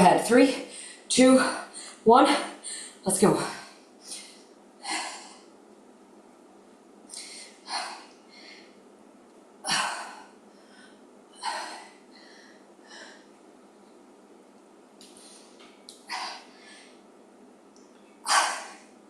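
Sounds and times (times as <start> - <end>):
woman breathing hard: 0.6 - 2.0, 2.6 - 5.5, 7.1 - 8.8, 9.6 - 13.4, 15.2 - 17.0, 18.2 - 18.9.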